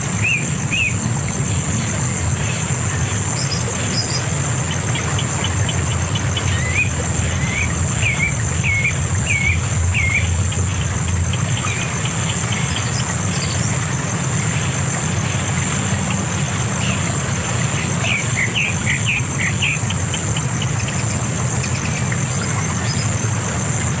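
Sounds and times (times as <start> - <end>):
high-pitched whine: 0.0 - 24.0
bird chirping: 3.3 - 13.8
low rumble: 6.4 - 14.2.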